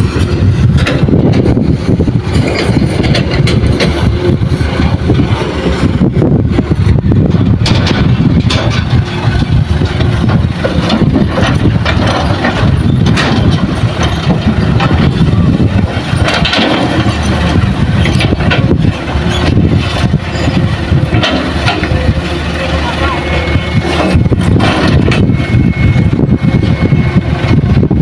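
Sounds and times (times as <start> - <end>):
heavy diesel engines under load: 0.0 - 28.0
short knocks and rattles: 15.8 - 22.1.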